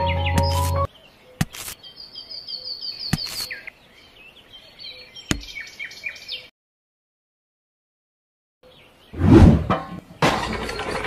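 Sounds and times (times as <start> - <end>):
small birds chirping: 0.0 - 6.5.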